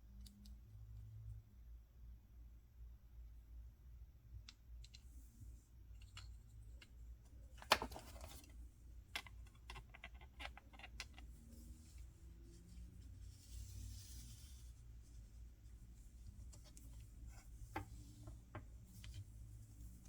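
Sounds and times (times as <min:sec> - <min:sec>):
plastic toys clicking and tapping: 0:09.1 - 0:11.3.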